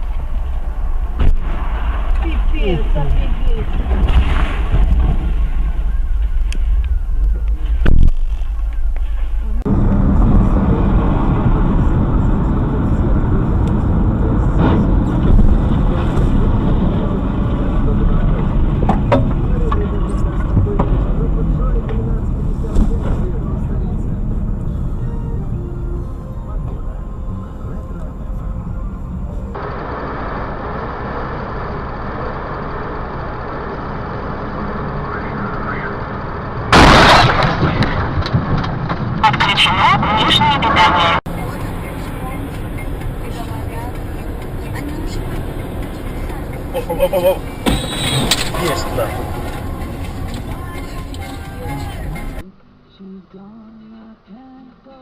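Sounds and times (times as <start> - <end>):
car engine and road noise: 0.0 - 55.0
loud collision impact: 36.7 - 39.2, 47.6 - 50.6.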